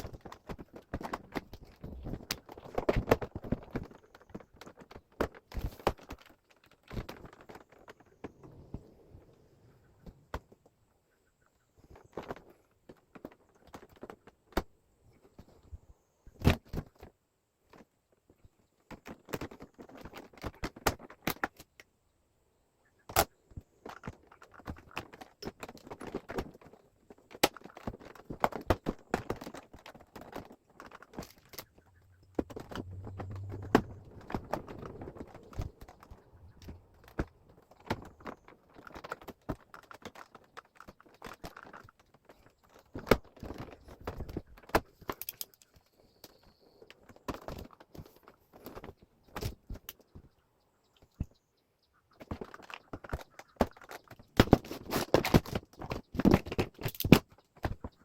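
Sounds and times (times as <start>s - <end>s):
plastic parts and tools rattling: 0.0s - 8.7s, 23.5s - 50.0s, 52.2s - 58.0s
low hum: 31.6s - 37.2s.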